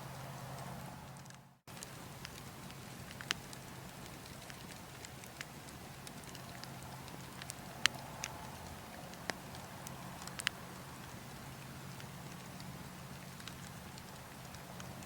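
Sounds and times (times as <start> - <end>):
low rumble of wind: 0.0 - 15.0
wood fire crackling and popping: 0.5 - 15.0.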